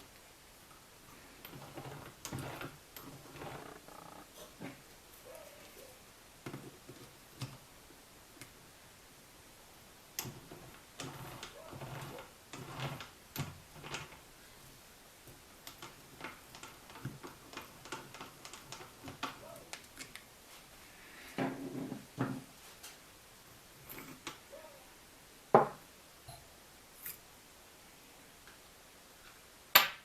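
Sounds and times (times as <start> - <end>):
hand tools clicking and knocking: 15.3 - 20.2.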